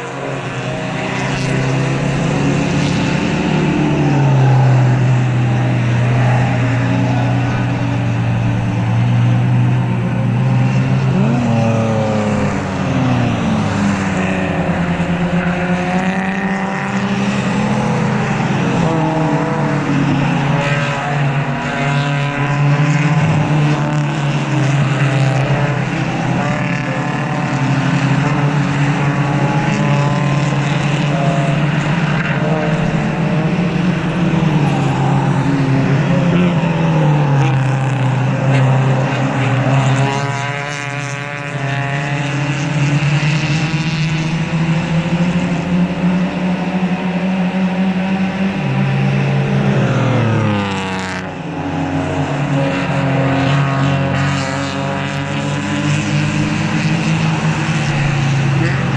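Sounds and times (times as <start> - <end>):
race cars passing: 0.0 - 58.9.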